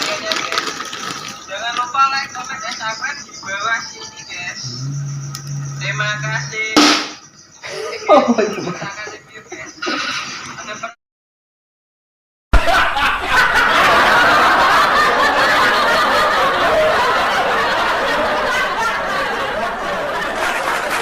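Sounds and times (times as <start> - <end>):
laugh track: 7.6 - 11.0, 12.6 - 21.0.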